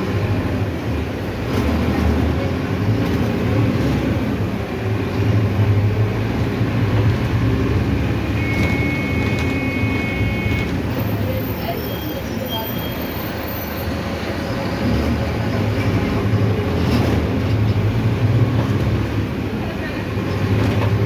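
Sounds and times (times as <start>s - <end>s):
bus engine running: 0.0s - 21.0s
high-pitched beep: 8.4s - 10.7s.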